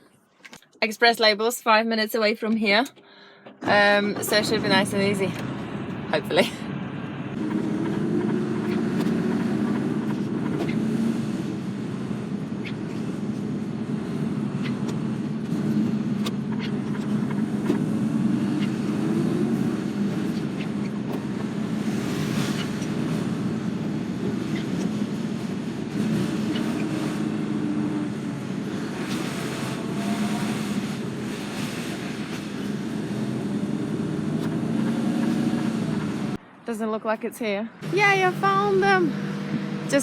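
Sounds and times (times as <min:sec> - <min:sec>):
lorry diesel engine humming: 0:37.7 - 0:40.0.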